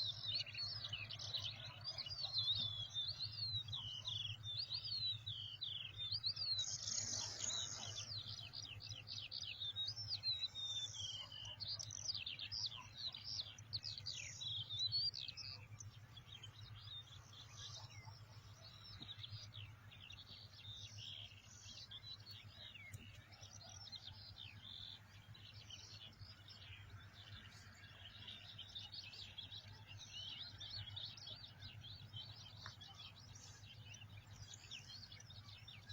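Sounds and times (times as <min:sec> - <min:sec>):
small birds chirping: 0:00.0 - 0:35.9.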